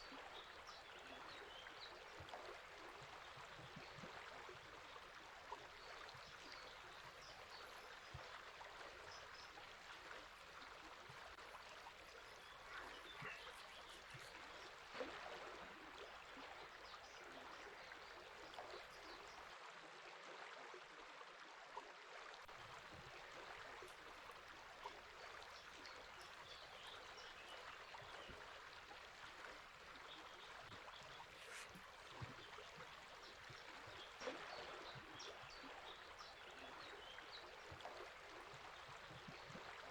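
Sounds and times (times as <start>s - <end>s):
river water flowing: 0.0s - 21.2s, 21.9s - 39.9s
faint bird chirps: 12.1s - 14.8s, 30.0s - 37.8s.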